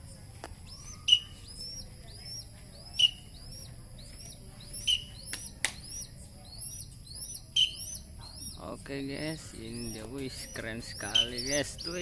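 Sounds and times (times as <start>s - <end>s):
young falcon chirping: 0.6s - 12.0s
sharp clicks: 5.2s - 6.0s.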